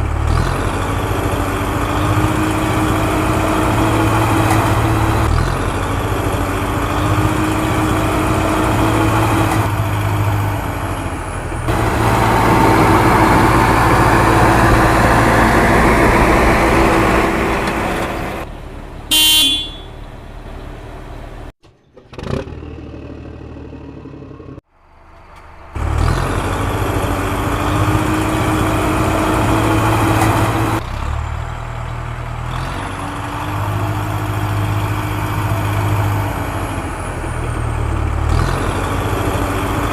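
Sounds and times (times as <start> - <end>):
diesel engine running hard: 0.0 - 21.5, 22.2 - 39.9
vehicle horn: 19.1 - 20.0.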